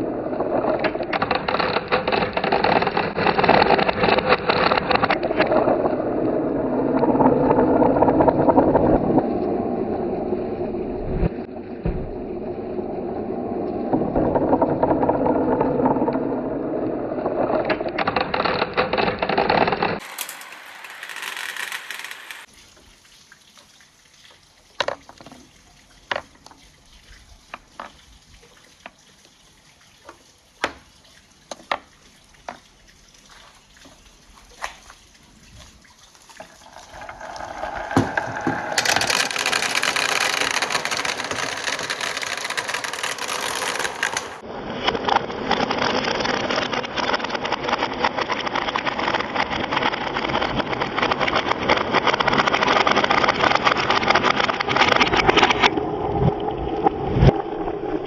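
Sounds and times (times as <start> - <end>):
marbles clacking through pipe: 17.3 - 22.5, 36.4 - 44.4
rushing water: 22.4 - 40.3.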